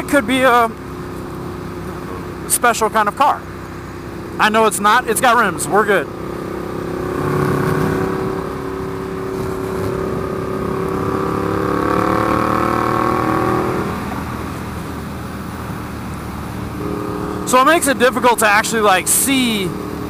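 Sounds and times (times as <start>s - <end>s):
motorcycle engine under throttle: 5.6s - 20.0s.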